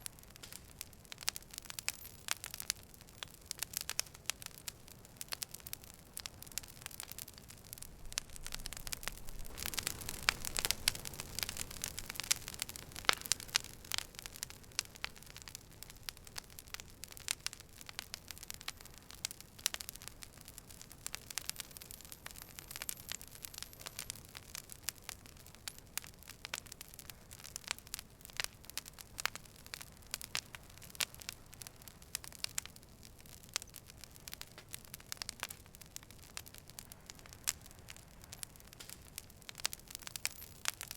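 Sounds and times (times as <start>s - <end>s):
campfire crackling and popping: 0.0s - 40.9s
soft hiss of flames: 0.0s - 40.9s.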